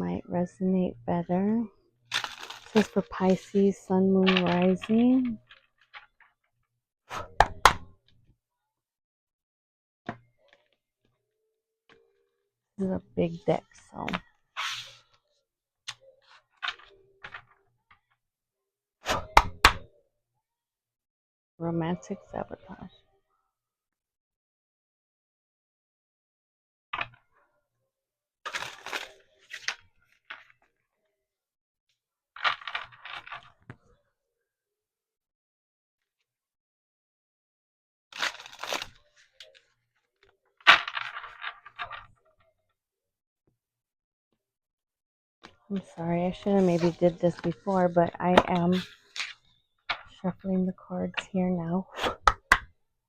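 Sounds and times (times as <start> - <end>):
cards being shuffled: 4.2 - 6.2, 28.5 - 30.6, 32.4 - 33.7, 38.2 - 39.6, 40.7 - 42.1, 45.8 - 50.1.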